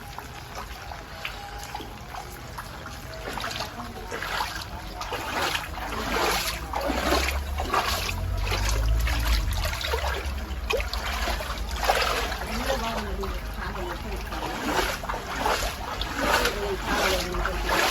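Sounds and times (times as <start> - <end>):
rainwater trickling and splashing: 0.0 - 17.9
low rumble: 6.5 - 17.6.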